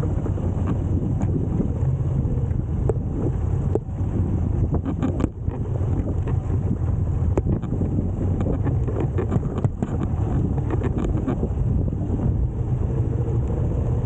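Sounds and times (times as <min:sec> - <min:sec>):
wind noise on microphone: 0:00.0 - 0:14.0
sharp knocks and clicks: 0:04.8 - 0:06.4, 0:07.3 - 0:11.5.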